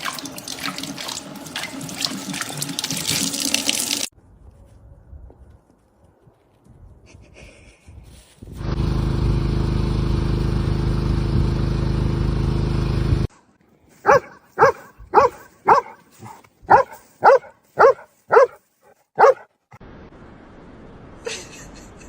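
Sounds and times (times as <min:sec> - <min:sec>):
dog barking: 0:14.0 - 0:19.5.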